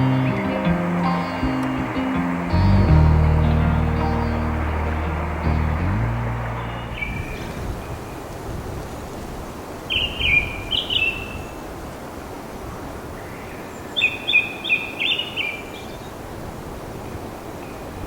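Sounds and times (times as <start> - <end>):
bird chirping: 0.0 - 7.8
steady outdoor hiss: 0.0 - 18.0.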